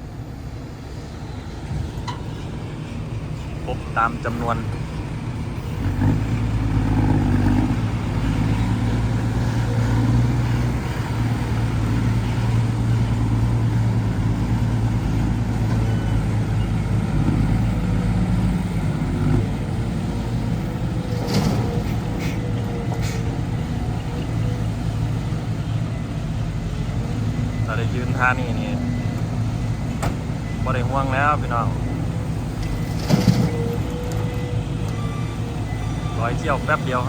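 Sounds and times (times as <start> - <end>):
diesel truck engine running: 0.0 - 37.0
short sharp hisses: 21.8 - 22.4, 23.0 - 23.3.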